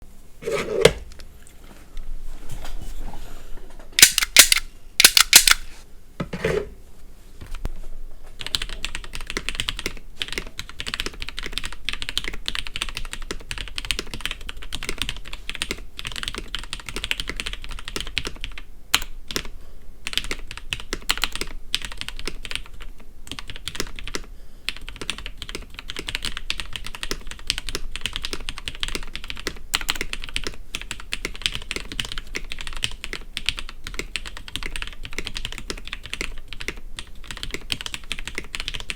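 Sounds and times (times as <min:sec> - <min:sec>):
mechanical keyboard typing: 0:04.0 - 0:05.6, 0:08.4 - 0:38.9.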